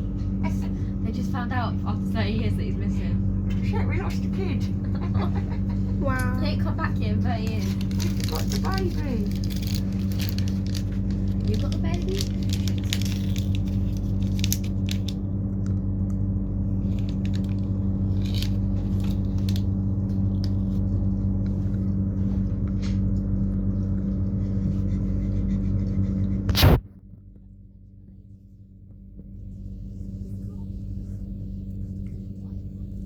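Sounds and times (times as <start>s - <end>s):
train carriage hum and rumble: 0.0s - 26.8s, 28.2s - 33.0s
clicks and rustles: 7.4s - 15.8s, 16.8s - 21.8s
loud crackle: 7.6s - 15.2s, 26.5s - 26.8s.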